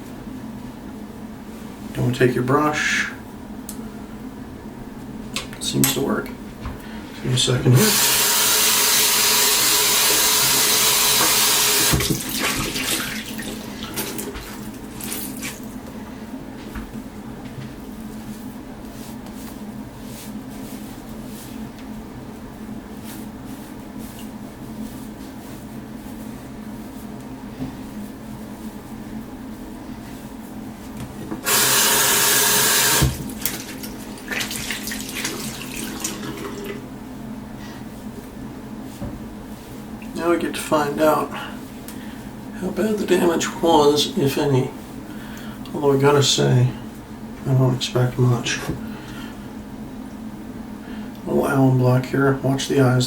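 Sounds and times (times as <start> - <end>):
tap running: 7.6 - 15.6, 31.0 - 36.8
tap running into sink: 11.1 - 13.0
water splashing: 33.3 - 36.8.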